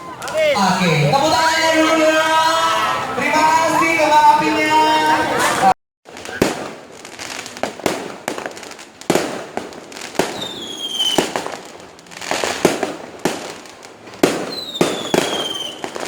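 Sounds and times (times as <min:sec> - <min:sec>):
fireworks bangs and crackle: 0:03.2 - 0:16.0
falling firework whistle: 0:10.2 - 0:11.4, 0:14.2 - 0:16.0.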